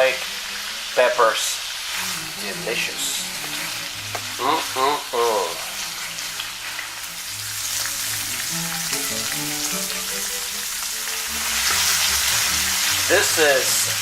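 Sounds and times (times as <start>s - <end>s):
background music: 0.0s - 14.0s
food sizzling in a pan: 0.0s - 14.0s.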